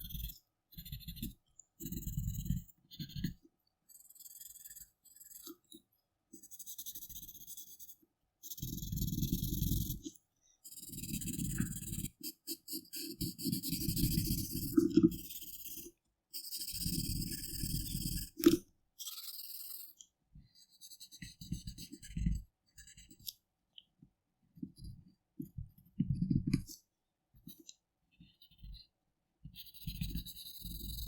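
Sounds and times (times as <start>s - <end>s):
drawing tool rubbing on paper: 0.0s - 5.7s, 6.4s - 10.0s, 10.6s - 18.4s, 19.0s - 20.0s, 20.6s - 23.3s, 28.2s - 31.0s.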